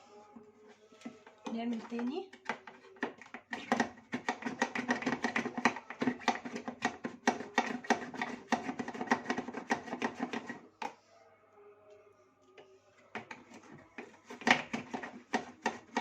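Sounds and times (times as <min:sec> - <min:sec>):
brush scrubbing: 0:03.6 - 0:10.6, 0:13.2 - 0:16.0.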